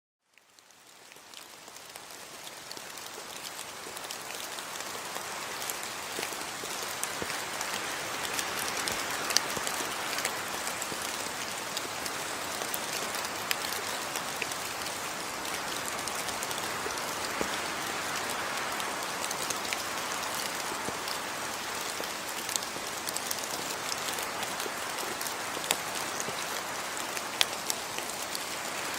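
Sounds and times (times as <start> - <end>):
steady rain falling: 0.2 - 28.9
rain drop ticks: 5.6 - 28.5.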